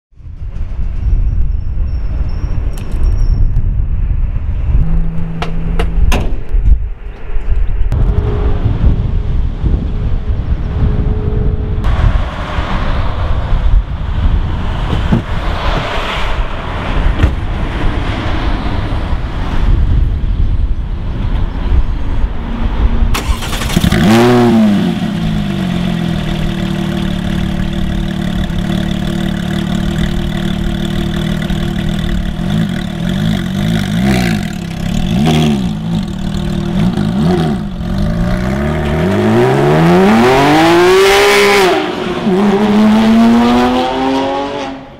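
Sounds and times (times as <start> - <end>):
wind noise on microphone: 0.1 - 44.9
car accelerating away: 23.2 - 44.9
car engine revving and idling: 23.2 - 44.9.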